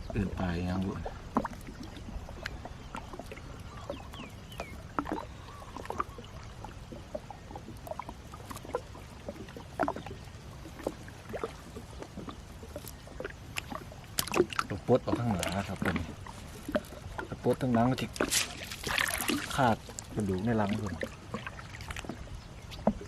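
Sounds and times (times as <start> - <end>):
knocks and splashes: 0.0 - 23.0
water lapping and dripping: 0.0 - 23.0.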